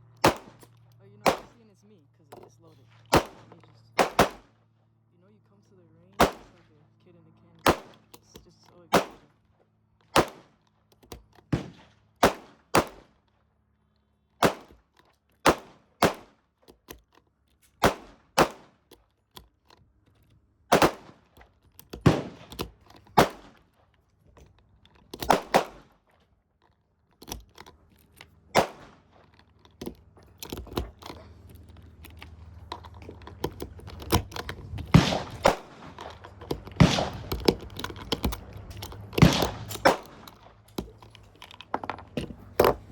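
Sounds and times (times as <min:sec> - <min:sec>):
gunshots: 0:00.2 - 0:01.6, 0:03.1 - 0:04.5, 0:06.2 - 0:06.7, 0:07.6 - 0:08.1, 0:08.9 - 0:09.3, 0:10.1 - 0:10.6, 0:11.5 - 0:13.1, 0:14.4 - 0:14.8, 0:15.4 - 0:16.3, 0:17.8 - 0:18.7, 0:20.7 - 0:21.3, 0:22.0 - 0:23.6, 0:25.2 - 0:26.0, 0:28.5 - 0:29.1, 0:34.1 - 0:40.6
steady background noise: 0:26.6 - 0:42.9.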